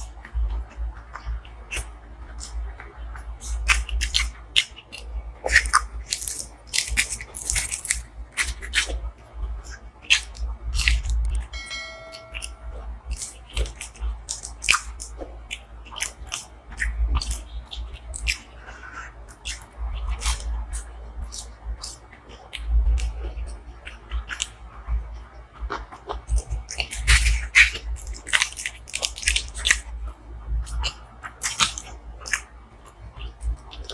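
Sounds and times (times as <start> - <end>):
chewing crunchy food: 0.0 - 11.5, 13.2 - 33.9
ringing tone: 11.5 - 12.9.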